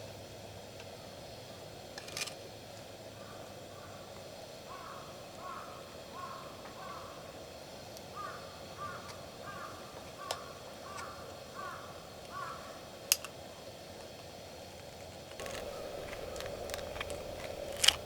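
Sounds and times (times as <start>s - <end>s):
crow cawing: 3.2s - 4.0s, 4.7s - 7.3s, 8.1s - 12.8s
sharp clicks: 15.3s - 18.0s.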